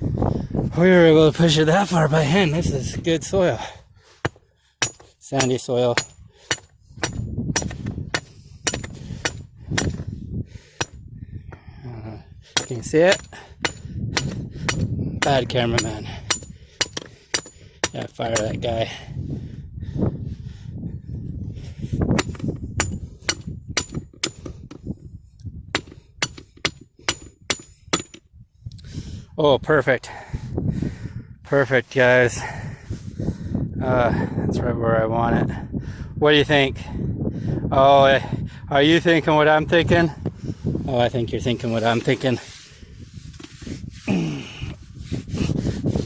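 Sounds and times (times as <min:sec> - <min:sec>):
metal post pounded metal strikes: 0:04.3 - 0:10.1, 0:12.6 - 0:18.6, 0:22.2 - 0:24.6, 0:25.7 - 0:28.2
hammer blows on metal post: 0:12.6 - 0:18.6.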